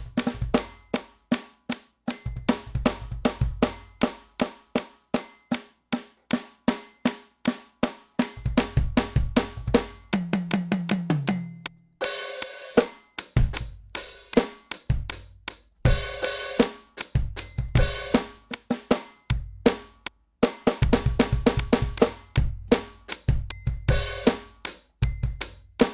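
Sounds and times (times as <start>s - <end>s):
electronic drum kit groove: 0.0s - 5.7s, 6.3s - 25.9s
tom fill: 8.2s - 25.9s.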